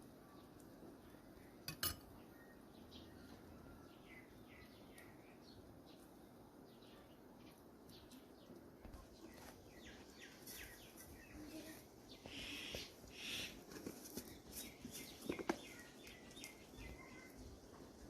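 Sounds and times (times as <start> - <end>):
bird chirps: 0.2 - 13.6, 14.2 - 17.5
rustling: 8.9 - 16.6.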